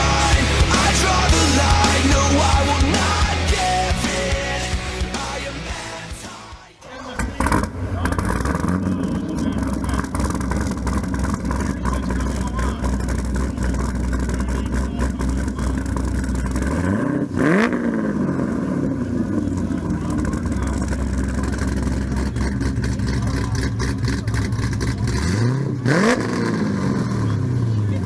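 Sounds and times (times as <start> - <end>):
car engine idling and revving: 0.0 - 28.0.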